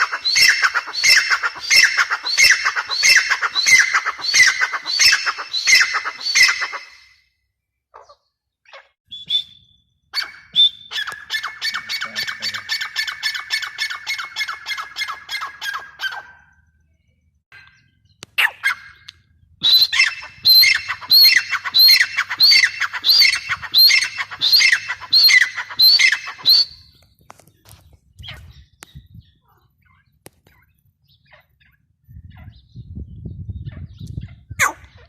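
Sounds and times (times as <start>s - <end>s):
francolin calling: 0.0s - 7.2s, 17.5s - 27.0s.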